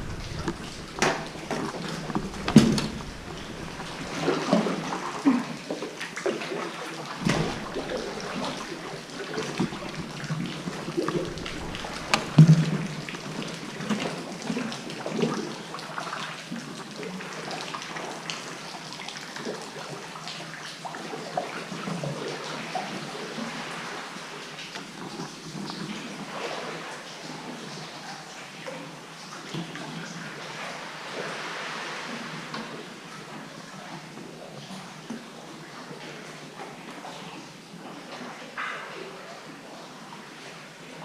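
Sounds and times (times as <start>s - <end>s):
paddle splashes: 0.0s - 16.2s
water lapping around a kayak: 0.0s - 41.0s.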